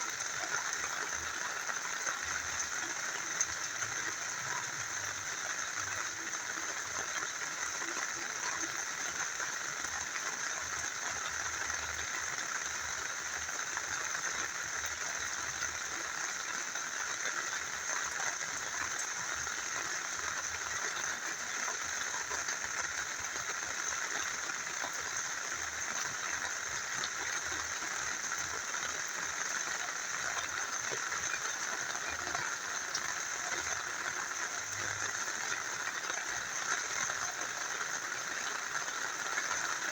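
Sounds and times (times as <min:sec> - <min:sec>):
rain falling: 0:00.0 - 0:39.9
small river flowing: 0:00.0 - 0:39.9.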